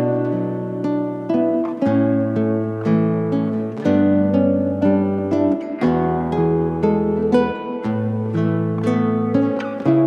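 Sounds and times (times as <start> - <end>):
acoustic guitar gentle melody: 0.0 - 10.0.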